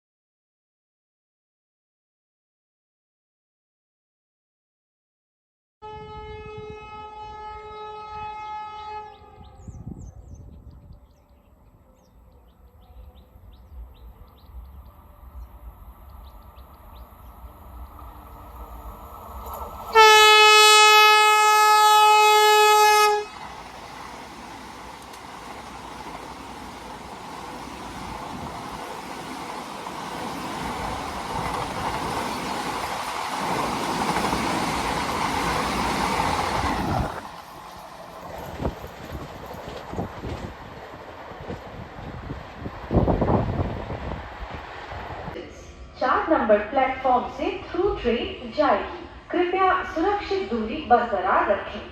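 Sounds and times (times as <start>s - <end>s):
train horn blast: 5.8s - 9.9s, 19.9s - 23.4s
approaching train rushing: 6.0s - 50.6s.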